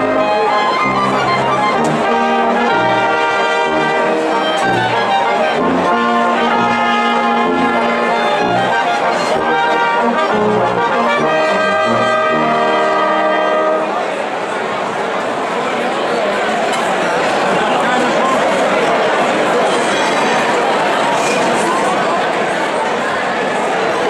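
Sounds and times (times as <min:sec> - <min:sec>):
trumpets and trombones melody: 0:00.0 - 0:14.1.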